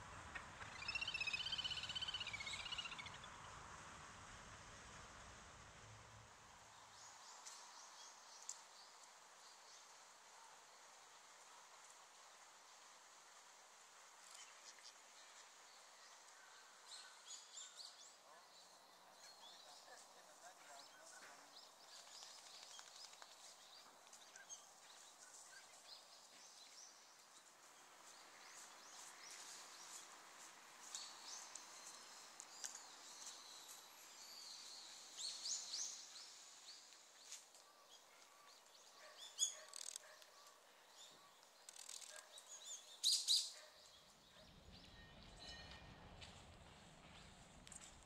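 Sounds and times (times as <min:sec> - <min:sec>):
faint outdoor ambience: 0:00.0 - 0:48.0
small birds chirping: 0:00.6 - 0:03.4, 0:14.2 - 0:45.5.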